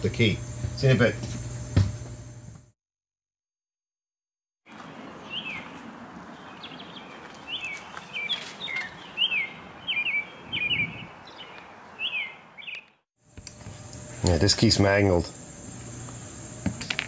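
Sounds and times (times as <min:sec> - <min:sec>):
outdoor background hiss: 0:00.0 - 0:02.7, 0:04.7 - 0:17.0
birds chirping downward notes: 0:04.7 - 0:13.0.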